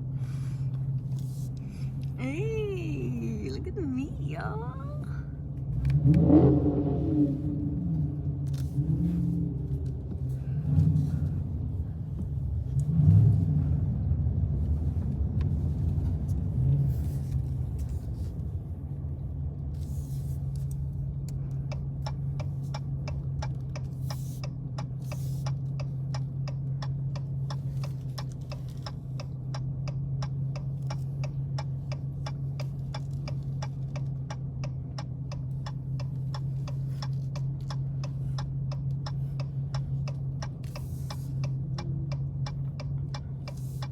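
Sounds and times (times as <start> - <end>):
car engine rumbling: 0.0 - 43.9
turn signal ticking: 14.6 - 43.9.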